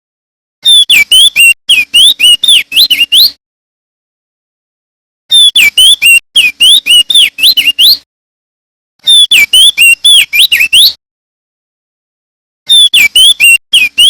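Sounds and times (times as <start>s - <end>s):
bird singing whistled notes: 0.6s - 3.4s, 5.3s - 8.0s, 9.0s - 11.0s, 12.7s - 14.0s.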